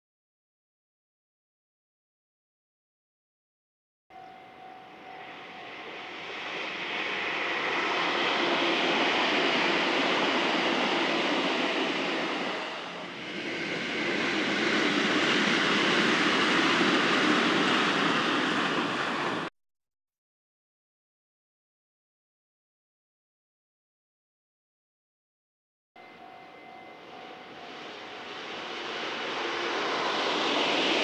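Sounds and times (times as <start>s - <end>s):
electric train rushing past: 4.2s - 19.5s, 26.0s - 31.0s.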